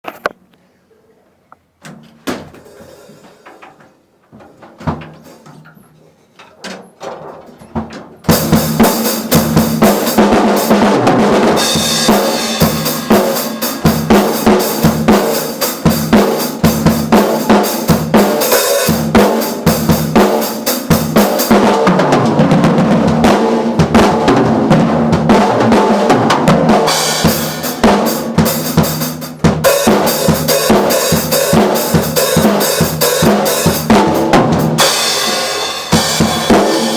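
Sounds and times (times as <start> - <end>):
drum kit playing with cymbals: 8.2 - 36.9.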